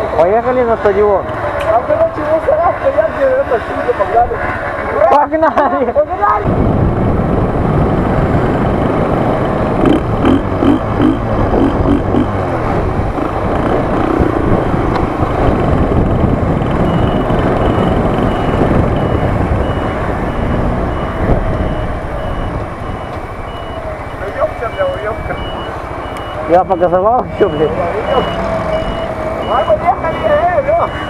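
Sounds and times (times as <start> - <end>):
wind rush on microphone: 6.4 - 23.6
moped engine running: 9.7 - 16.8
high beeping: 16.8 - 31.0.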